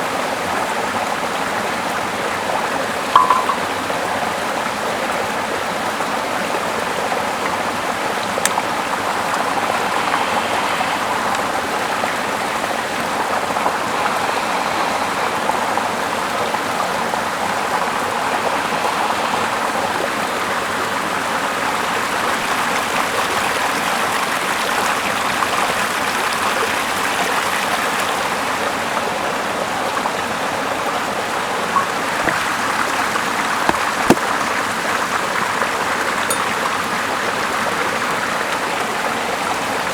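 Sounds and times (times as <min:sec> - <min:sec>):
river flowing: 0:00.0 - 0:04.2, 0:06.0 - 0:39.9.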